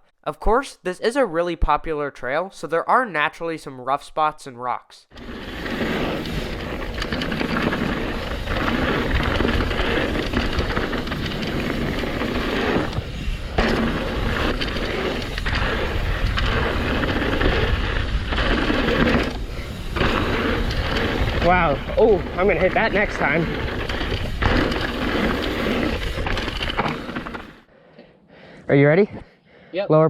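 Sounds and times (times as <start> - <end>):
bike rattling over rough ground: 5.1 - 27.6
bike tyre noise: 5.1 - 27.7
wind buffeting microphone: 8.0 - 26.3.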